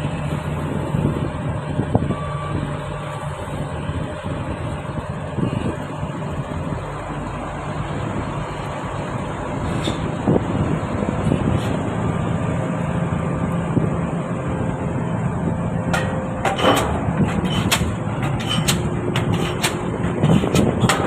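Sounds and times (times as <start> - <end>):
engine running: 0.0 - 21.0
pile hammer strikes: 15.9 - 21.0.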